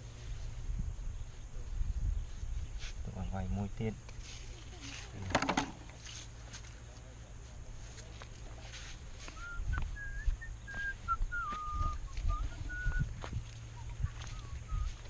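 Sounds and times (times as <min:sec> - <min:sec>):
handling knocks and clicks: 0:05.2 - 0:06.0
thin broken whistling: 0:09.3 - 0:13.1.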